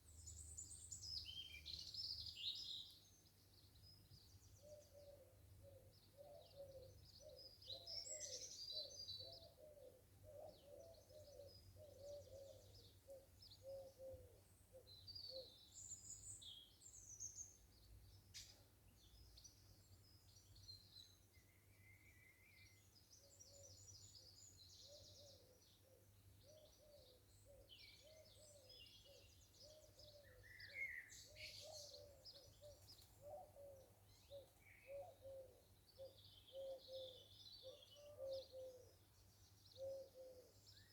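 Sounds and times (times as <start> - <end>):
birds chirping and singing: 26.4 - 38.8.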